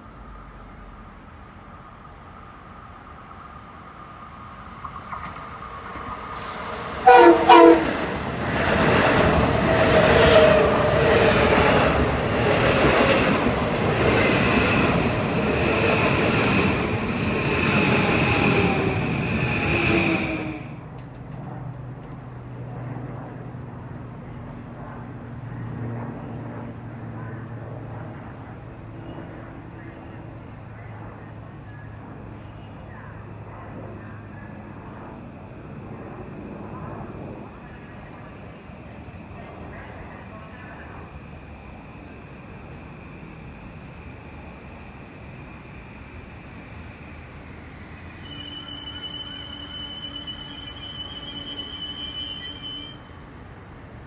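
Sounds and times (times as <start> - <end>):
train wheel and rail noise: 0.0 - 54.0
train horn blasts: 7.0 - 8.1, 48.2 - 53.0.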